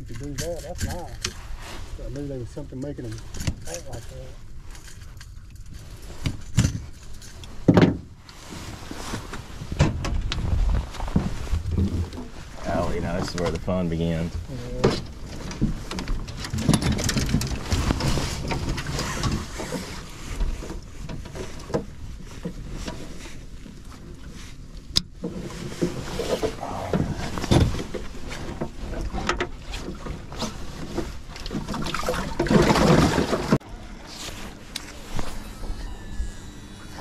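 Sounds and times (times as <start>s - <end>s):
wind on microphone: 9.4s - 12.6s
water sloshing: 25.2s - 35.6s.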